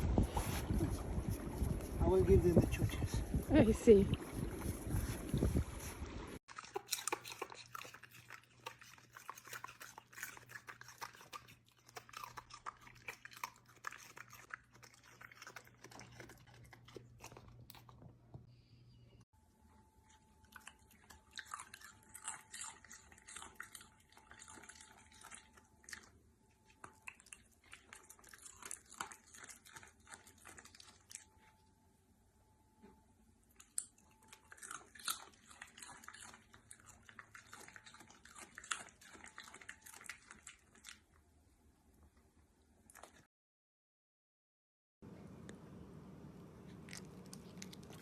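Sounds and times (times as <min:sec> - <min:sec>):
dog chewing crunchy food: 0:04.3 - 0:18.4, 0:19.9 - 0:31.6, 0:33.5 - 0:41.3, 0:46.6 - 0:48.0.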